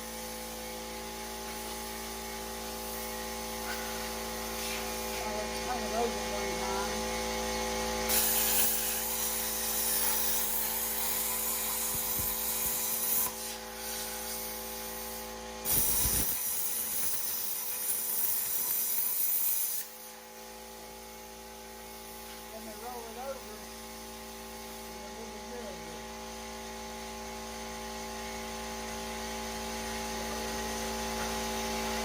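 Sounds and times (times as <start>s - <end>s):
electrical hum: 0.0s - 18.6s
plasma cutter hissing: 1.2s - 6.9s, 8.0s - 20.6s, 21.2s - 26.0s.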